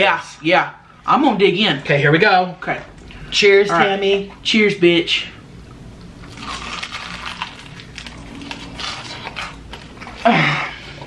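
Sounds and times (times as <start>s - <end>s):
crunching fried chicken: 6.2s - 10.3s.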